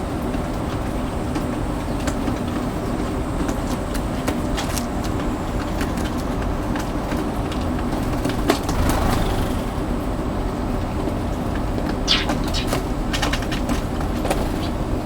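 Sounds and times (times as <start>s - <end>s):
rain hissing: 7.9s - 11.3s.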